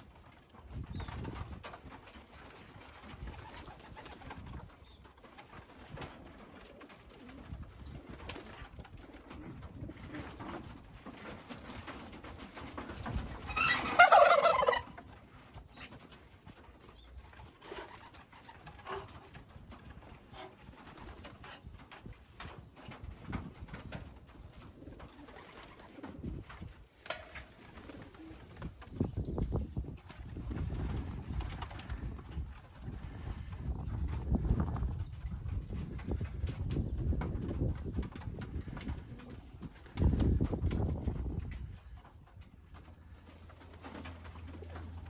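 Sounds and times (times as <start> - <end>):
pigeons cooing: 2.3 - 29.4.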